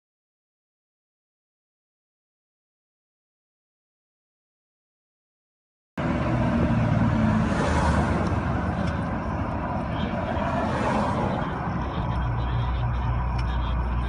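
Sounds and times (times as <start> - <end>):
road vehicle engine hum: 6.0 - 14.0
tyres rushing on road: 6.0 - 14.0.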